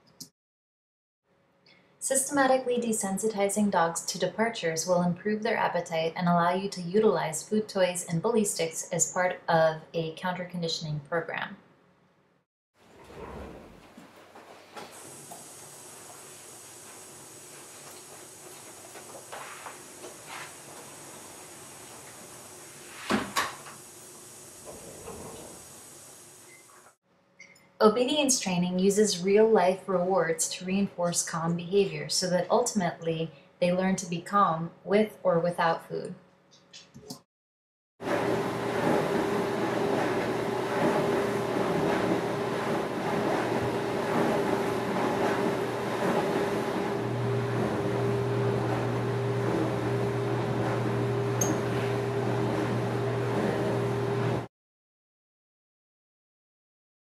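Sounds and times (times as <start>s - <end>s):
machine hum with hiss: 38.1s - 54.5s.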